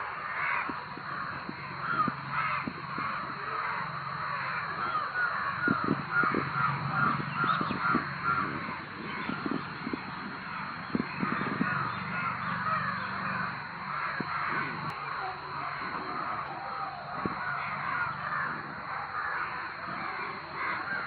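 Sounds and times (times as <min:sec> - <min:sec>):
crows cawing: 0:00.0 - 0:21.0.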